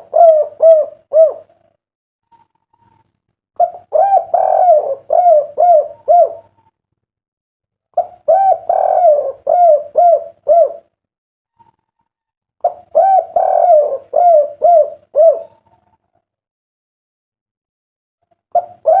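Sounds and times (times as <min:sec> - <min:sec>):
dove cooing: 0:00.0 - 0:01.7, 0:03.6 - 0:06.7, 0:08.0 - 0:11.0, 0:12.6 - 0:16.1, 0:18.5 - 0:19.0.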